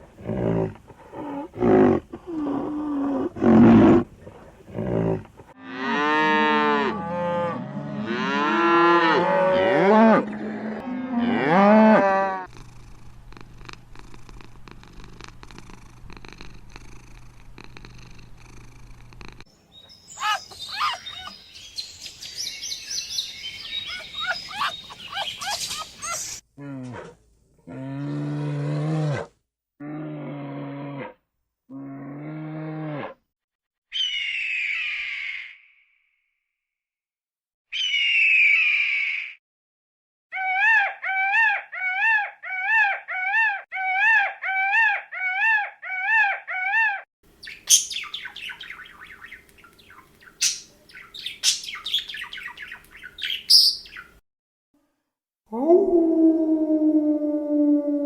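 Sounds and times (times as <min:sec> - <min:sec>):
animal long drawn-out call: 0:40.3 - 0:47.0.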